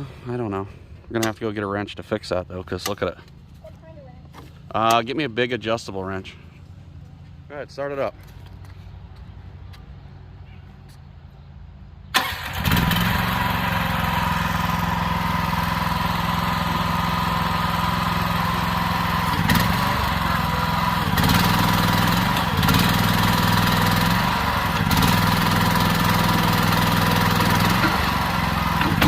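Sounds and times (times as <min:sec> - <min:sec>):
small gasoline engine running: 0:12.2 - 0:29.0.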